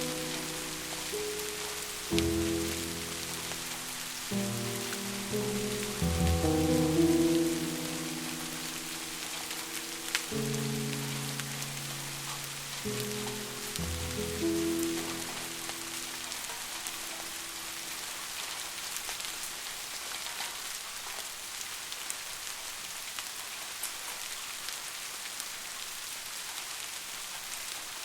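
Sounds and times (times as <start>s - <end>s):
slowed piano note: 0.0s - 18.6s
steady rain patter: 0.0s - 28.0s.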